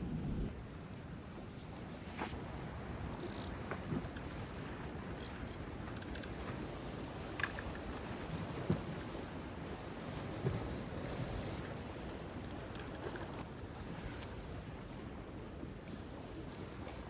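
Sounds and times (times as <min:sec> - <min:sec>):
wind and sea rushing: 0:00.0 - 0:17.0
night insects trilling: 0:02.4 - 0:10.7.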